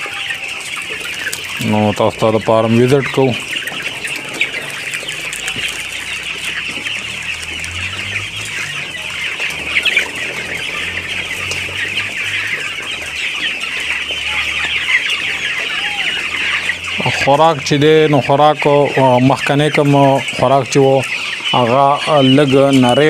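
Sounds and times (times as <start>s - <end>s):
chicks peeping and chirping: 0.0s - 23.0s.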